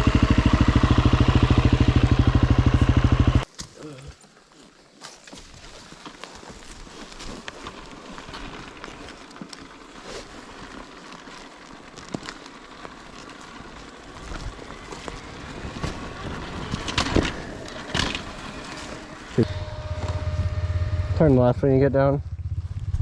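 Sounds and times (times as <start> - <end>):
dirt bike engine idling: 0.0 - 3.4, 13.0 - 23.0
scuffing and crunching on dirt: 3.4 - 21.4, 22.3 - 23.0.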